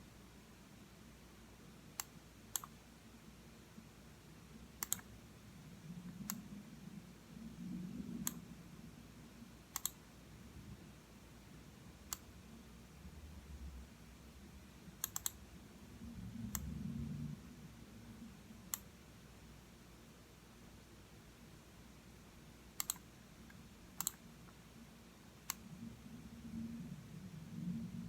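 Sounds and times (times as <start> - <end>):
faint low rumble: 0.0 - 28.0
computer mouse button clicking: 4.8 - 5.1, 9.8 - 10.0, 15.0 - 15.4, 22.8 - 23.0.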